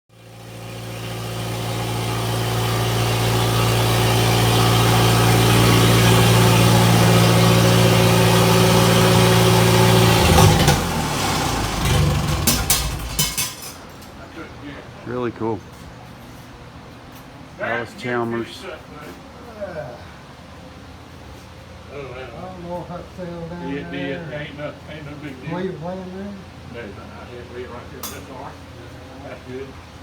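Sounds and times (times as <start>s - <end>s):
engine idling: 0.1s - 13.8s.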